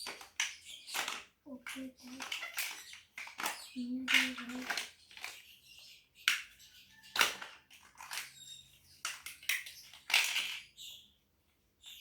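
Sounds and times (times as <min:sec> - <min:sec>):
plastic bricks clattering: 0:00.0 - 0:05.5, 0:07.2 - 0:10.7.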